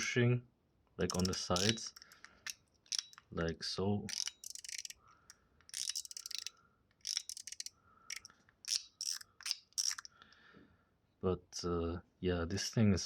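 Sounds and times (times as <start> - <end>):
fidget slider clicking: 1.0 - 3.5, 4.1 - 10.1.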